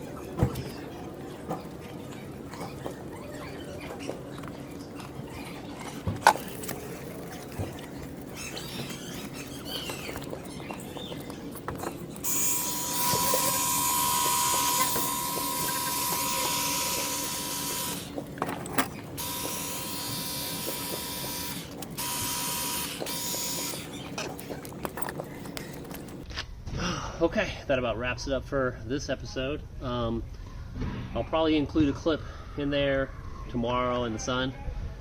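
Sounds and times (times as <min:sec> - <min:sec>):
pressure washer pump whine: 0:11.6 - 0:26.2
water jet hissing: 0:12.2 - 0:18.2, 0:19.2 - 0:24.1.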